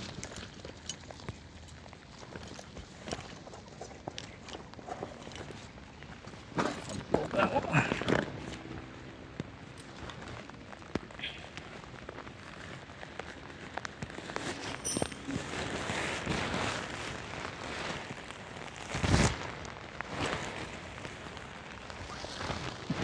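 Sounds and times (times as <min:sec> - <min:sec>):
heavy rain pattering: 0:01.4 - 0:23.0.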